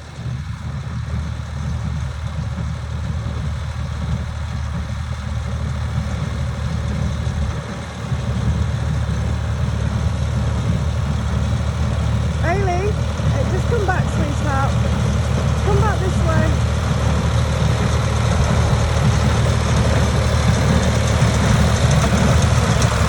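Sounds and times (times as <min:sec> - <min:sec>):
tractor engine rumbling: 0:00.0 - 0:23.0.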